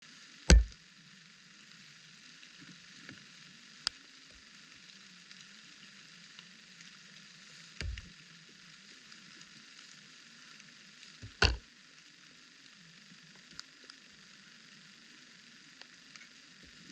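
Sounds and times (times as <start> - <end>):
low thump: 0.5 - 0.8, 7.8 - 8.1, 11.2 - 11.6.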